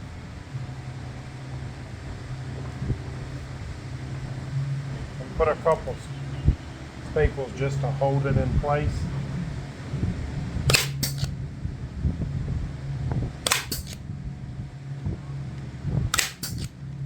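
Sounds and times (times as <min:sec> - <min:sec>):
steady low hum: 0:00.0 - 0:17.0
staple gun firing: 0:10.7 - 0:11.3, 0:13.5 - 0:14.0, 0:16.1 - 0:16.8.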